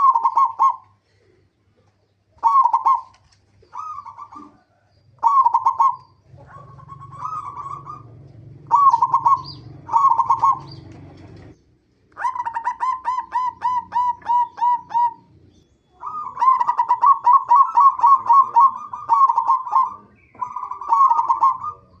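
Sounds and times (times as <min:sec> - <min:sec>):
dove cooing: 0:00.0 - 0:22.0
low hum: 0:06.3 - 0:11.7.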